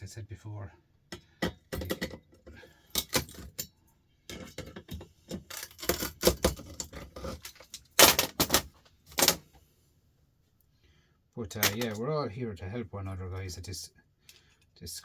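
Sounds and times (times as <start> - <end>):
small metal parts clinking: 2.9 - 3.7, 4.3 - 9.4, 11.6 - 12.0.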